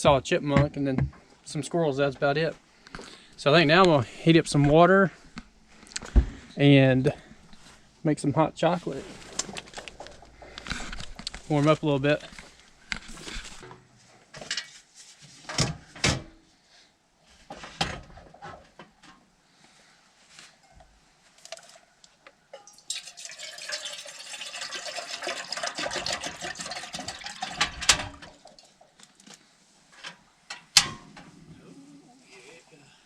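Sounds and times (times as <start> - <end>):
water pouring into a pot: 22.6 - 28.8.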